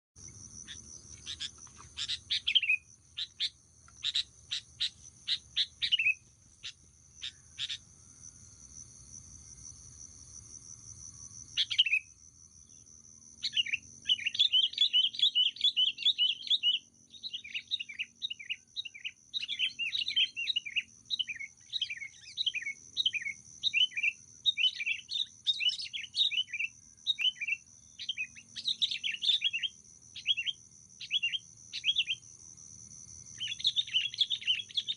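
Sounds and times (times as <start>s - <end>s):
insect drone: 0.2s - 34.9s
bulbuls calling: 0.6s - 7.8s.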